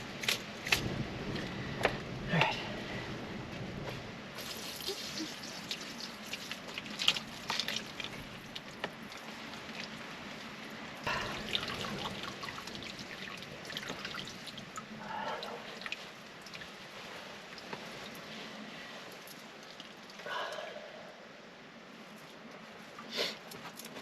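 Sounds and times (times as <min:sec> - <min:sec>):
water dripping and trickling: 0:04.3 - 0:20.8.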